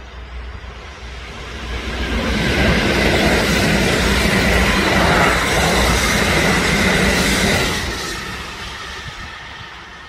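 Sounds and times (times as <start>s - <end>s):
train wheel-on-rail rush: 0.0s - 10.0s.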